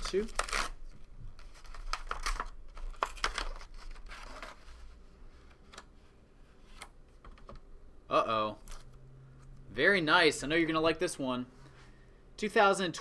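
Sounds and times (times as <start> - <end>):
plastic packaging crinkling and tearing: 0.0 - 4.6.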